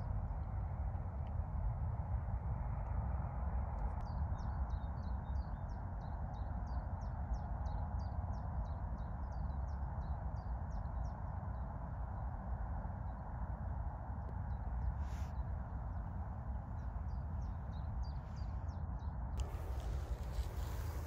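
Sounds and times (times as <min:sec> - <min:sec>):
steady low rumble: 0:10.7 - 0:21.0.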